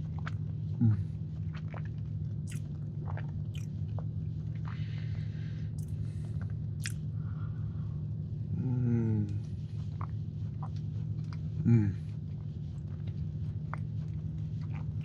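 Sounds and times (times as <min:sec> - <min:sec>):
chewing soft cookie: 0:00.0 - 0:15.0
low hum: 0:00.0 - 0:15.0
wet mouth clicks and smacks: 0:02.5 - 0:03.7, 0:06.8 - 0:07.0.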